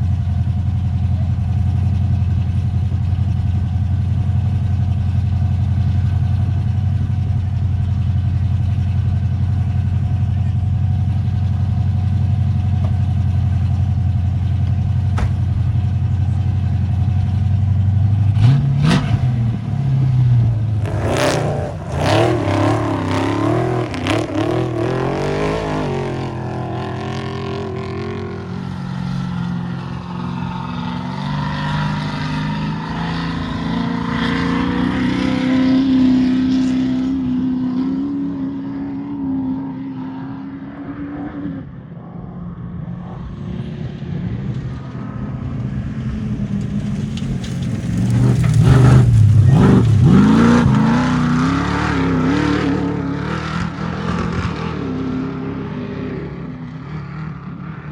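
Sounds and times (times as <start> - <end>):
off-road vehicle engine revving: 0.0 - 41.7, 46.6 - 57.9
sharp knocks and clatter: 15.1 - 15.8.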